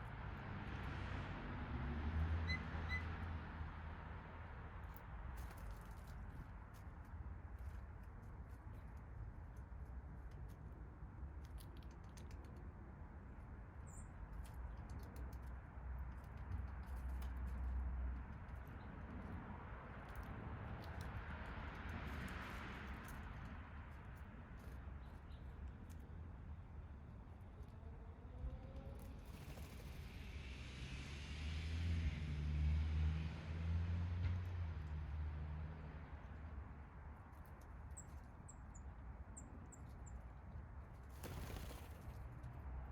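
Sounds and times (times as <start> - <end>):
vehicle passing by: 0.1 - 4.7, 27.4 - 36.6
birds pecking at seed: 5.4 - 13.4, 14.2 - 19.4, 20.0 - 27.5.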